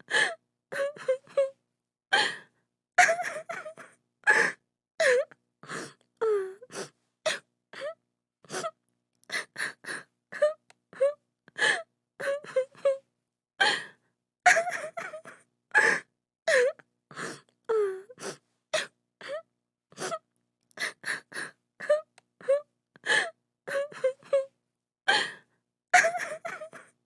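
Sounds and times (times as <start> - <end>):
woman sobbing: 0.2 - 1.5, 3.0 - 5.3, 14.5 - 16.8, 21.8 - 24.5, 26.0 - 26.9.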